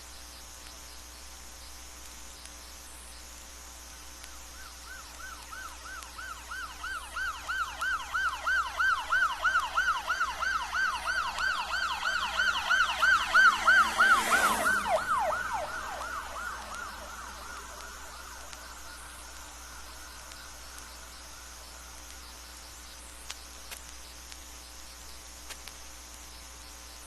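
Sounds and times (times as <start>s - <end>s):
police siren yelping: 4.8s - 21.5s
car road noise: 9.9s - 20.7s.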